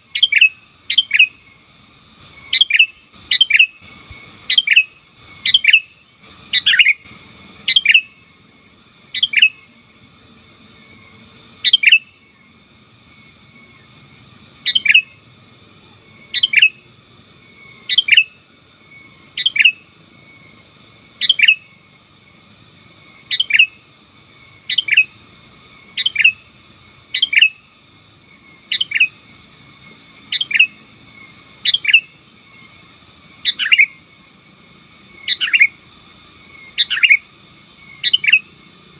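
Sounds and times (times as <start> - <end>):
bulbul calling: 0.0 - 1.5, 2.4 - 8.2, 9.1 - 9.7, 11.6 - 12.2, 14.6 - 15.2, 16.2 - 16.9, 17.6 - 18.4, 19.0 - 19.9, 21.2 - 21.8, 23.2 - 23.8, 24.6 - 25.2, 25.9 - 26.5, 27.1 - 27.8, 28.6 - 29.2, 30.3 - 30.8, 31.6 - 32.2, 33.4 - 34.0, 35.2 - 35.8, 36.6 - 37.3, 37.9 - 38.5.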